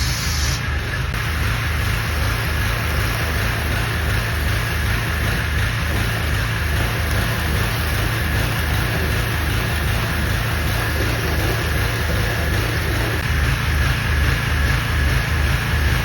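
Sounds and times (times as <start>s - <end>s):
water spray hiss: 0.0s - 13.2s
pressure washer engine drone: 0.0s - 16.0s.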